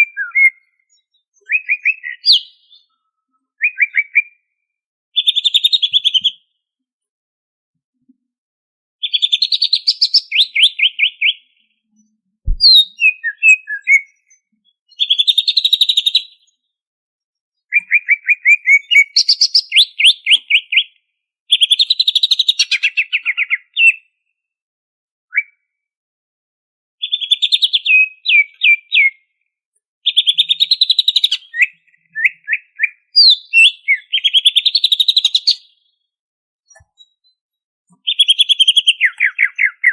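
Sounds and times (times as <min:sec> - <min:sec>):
low thump: 0:12.5 - 0:12.8.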